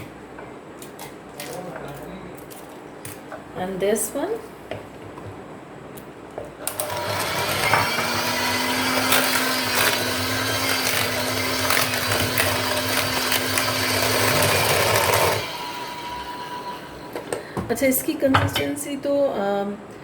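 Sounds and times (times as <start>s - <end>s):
electric hand mixer running: 6.7s - 17.6s.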